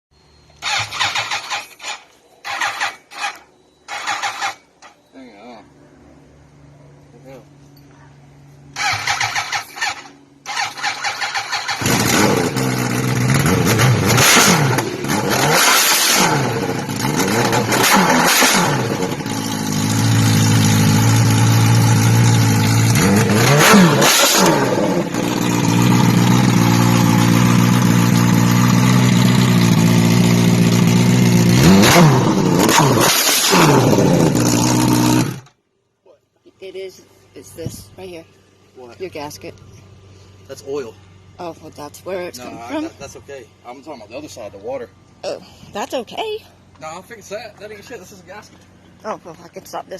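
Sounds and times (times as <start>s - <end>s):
motorcycle engine revving: 0.5s - 5.0s, 8.7s - 35.6s
motorcycle starter cranking: 0.6s - 5.0s, 8.7s - 20.6s, 31.9s - 35.5s.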